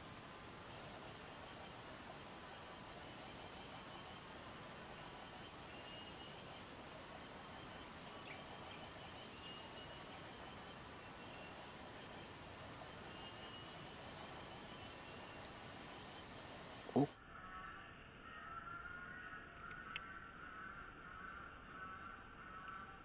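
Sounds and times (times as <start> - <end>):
sunbird twittering call: 0.7 - 22.9.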